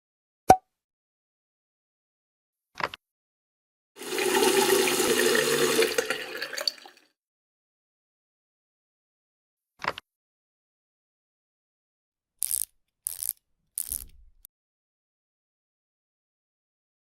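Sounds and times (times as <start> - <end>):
water rushing: 4.0 - 7.0.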